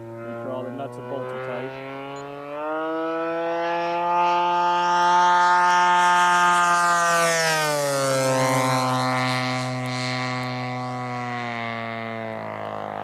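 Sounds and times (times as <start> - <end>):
model plane engine flying past: 0.0 - 13.0.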